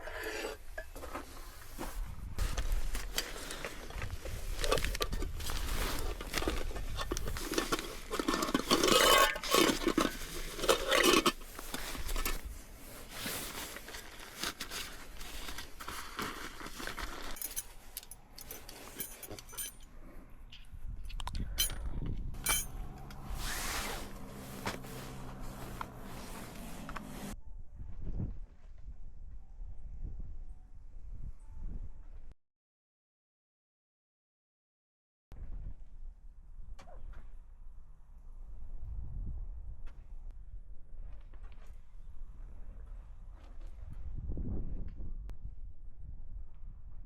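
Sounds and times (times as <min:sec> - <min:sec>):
camping gear clinking and scraping: 0:00.0 - 0:27.4.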